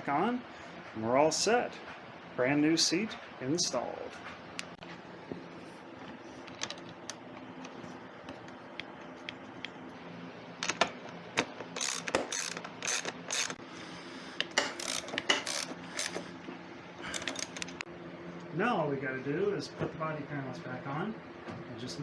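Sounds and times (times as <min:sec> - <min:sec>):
ratchet wrench ratcheting: 0:11.7 - 0:13.6, 0:14.6 - 0:16.2, 0:17.1 - 0:17.8.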